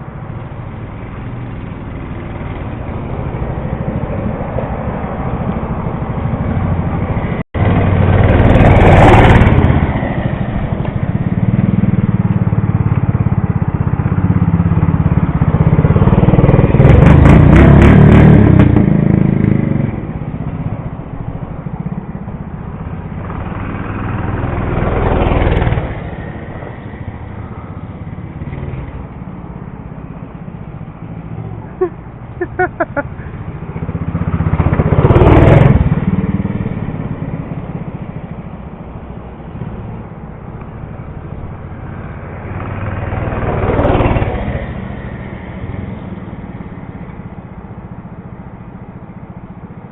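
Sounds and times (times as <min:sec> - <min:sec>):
mini bike engine revving: 0:07.6 - 0:20.0, 0:23.1 - 0:26.4, 0:31.4 - 0:37.2, 0:42.4 - 0:44.8.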